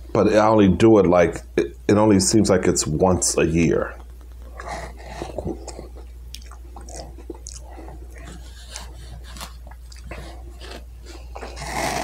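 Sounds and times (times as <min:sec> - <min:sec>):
man chewing food: 0:04.0 - 0:12.0.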